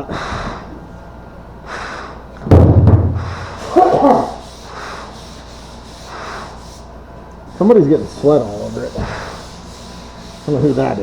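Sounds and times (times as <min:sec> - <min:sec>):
heavy thump with low boom: 0:02.4 - 0:03.5
faint rubbing or breathing: 0:03.2 - 0:11.0.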